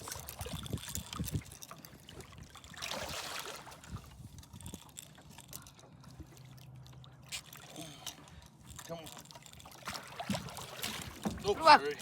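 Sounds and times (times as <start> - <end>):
water splash: 2.7 - 3.9, 9.8 - 11.6.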